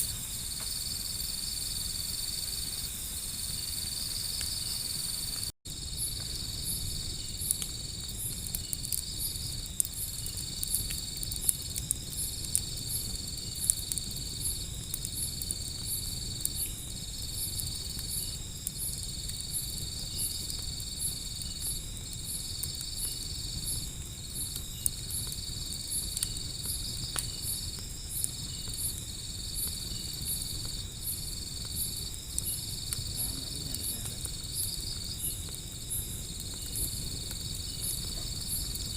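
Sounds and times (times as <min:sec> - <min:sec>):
crickets chirping: 0:00.0 - 0:38.9
fast pulsing insect call: 0:00.0 - 0:38.9
wood fire crackling pops: 0:00.0 - 0:38.9.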